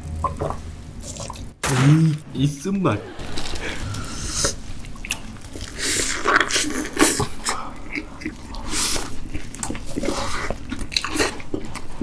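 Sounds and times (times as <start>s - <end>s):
hamburger bites and chewing: 4.8s - 12.0s.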